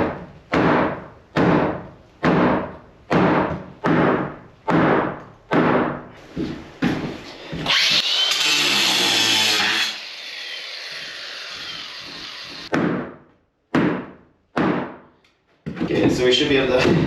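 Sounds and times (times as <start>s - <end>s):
hammer blows on wooden framing: 0.0s - 6.2s, 11.0s - 17.0s.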